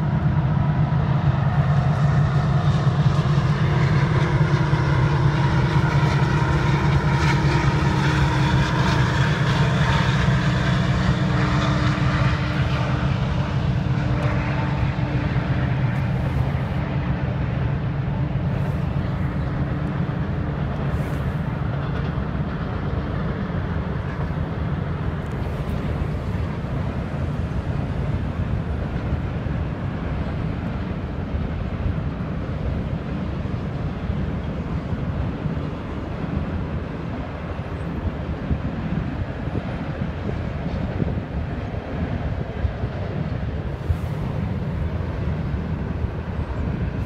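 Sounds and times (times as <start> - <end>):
freight train cars rumbling: 0.0 - 47.0
low engine hum: 0.0 - 47.0.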